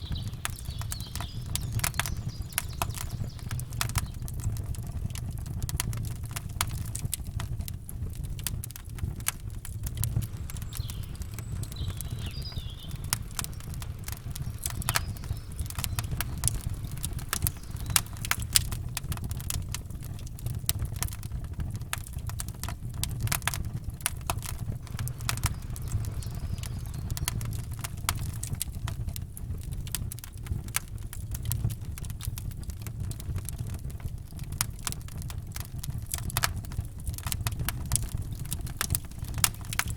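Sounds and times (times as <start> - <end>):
faint bird chirp: 0.0 - 4.3, 10.2 - 18.7, 24.8 - 28.4
campfire crackling: 0.0 - 39.9.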